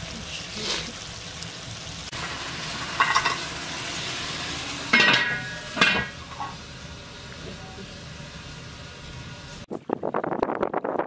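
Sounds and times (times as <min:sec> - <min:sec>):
meat sizzling in pot: 0:00.0 - 0:09.7
ringing metal clang: 0:04.9 - 0:06.5.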